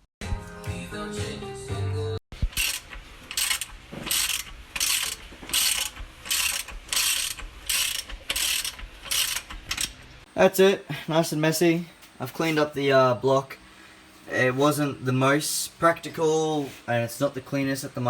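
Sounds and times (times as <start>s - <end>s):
hand tool rhythmic strokes: 2.4s - 9.9s.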